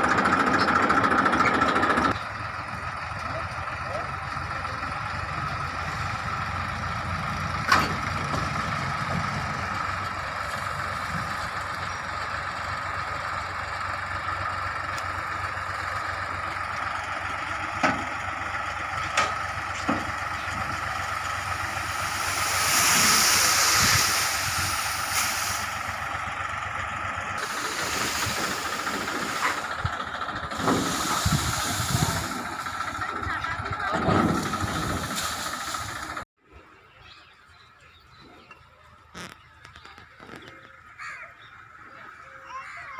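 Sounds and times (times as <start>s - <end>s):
tractor engine running: 0.0s - 36.3s, 37.8s - 42.9s
hissing rush: 21.0s - 26.2s, 27.4s - 29.9s, 30.5s - 33.0s, 34.3s - 36.2s.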